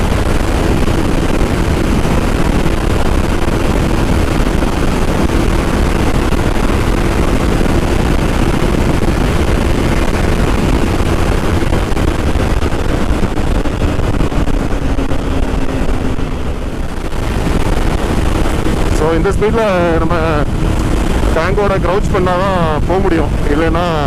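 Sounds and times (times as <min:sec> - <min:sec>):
motorcycle engine at high speed: 0:00.0 - 0:24.0
wind rush: 0:00.0 - 0:24.0.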